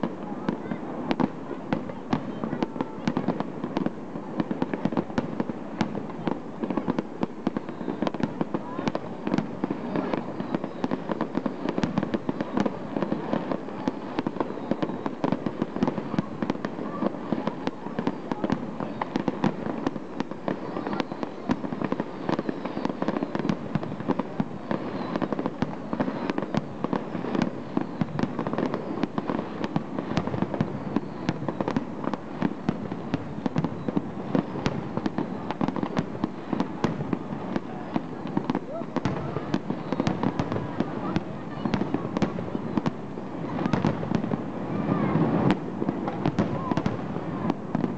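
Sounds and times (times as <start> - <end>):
fireworks popping and banging: 0.0 - 47.9.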